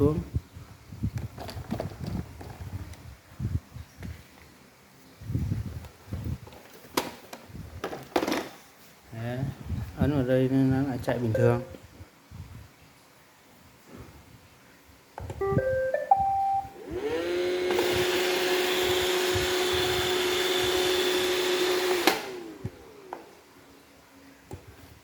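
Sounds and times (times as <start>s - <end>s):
robot vacuum start-up beeps: 15.4s - 17.1s
vacuum motor whine: 16.4s - 23.4s.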